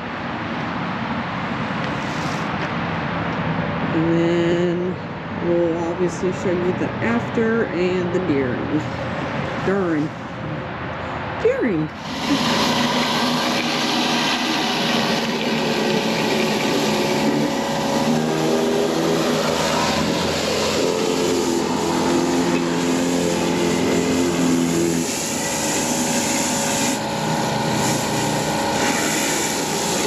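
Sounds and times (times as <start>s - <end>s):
high-pressure water hissing on concrete: 12.0s - 30.0s
pressure washer engine running: 12.0s - 30.0s.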